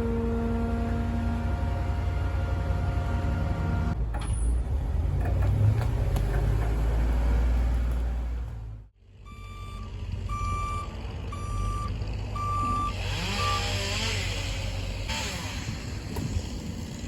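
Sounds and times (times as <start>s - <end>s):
diesel truck engine running: 0.0s - 17.0s
truck reversing alarm beeping: 9.2s - 14.0s.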